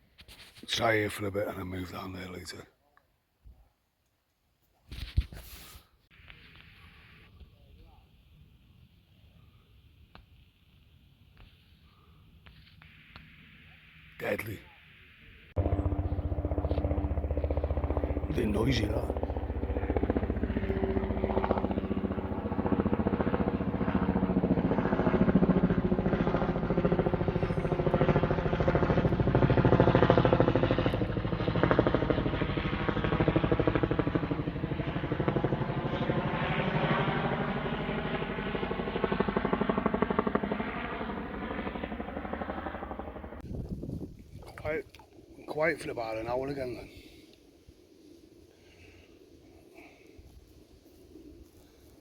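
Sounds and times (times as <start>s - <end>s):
engine running: 15.6s - 24.5s.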